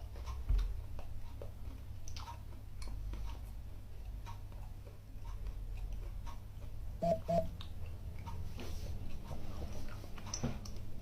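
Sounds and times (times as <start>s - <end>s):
closed-mouth hums: 7.0s - 7.7s.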